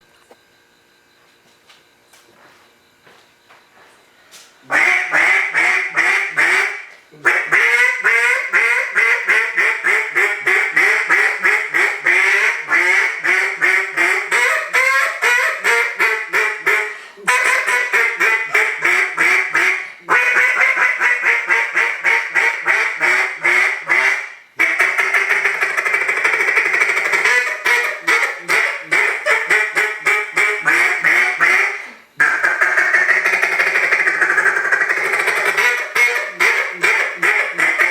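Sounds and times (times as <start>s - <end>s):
duck call quacks: 4.7s - 37.9s.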